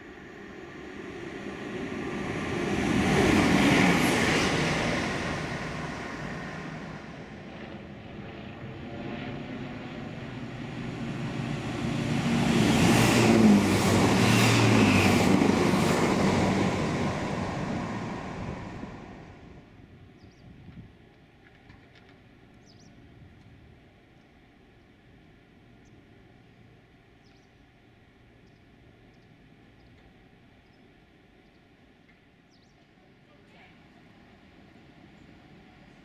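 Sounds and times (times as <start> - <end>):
diesel train engine passing: 0.0 - 19.8.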